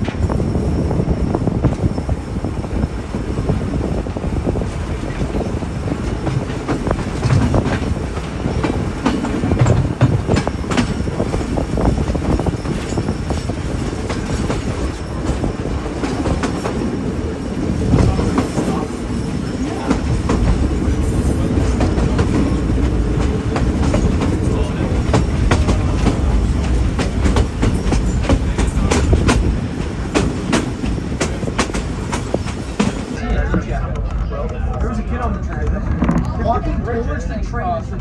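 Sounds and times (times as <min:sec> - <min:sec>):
clickety-clack of rail joints: 0:00.0 - 0:37.0
train wheels rumbling on rail: 0:00.0 - 0:38.0.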